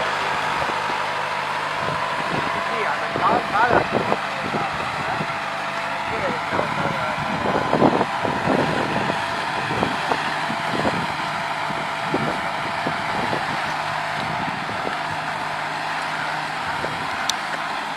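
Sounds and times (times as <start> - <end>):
tractor diesel engine running: 0.0 - 17.9.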